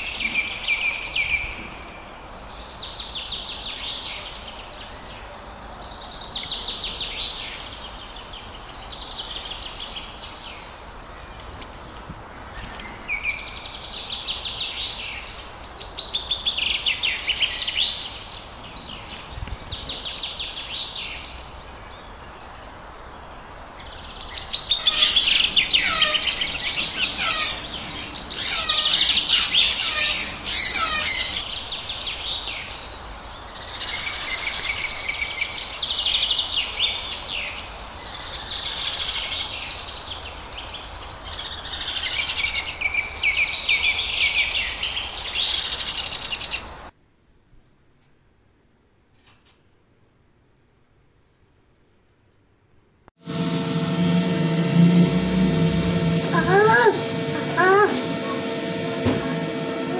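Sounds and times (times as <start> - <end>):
lovebirds chattering: 24.8 - 31.4.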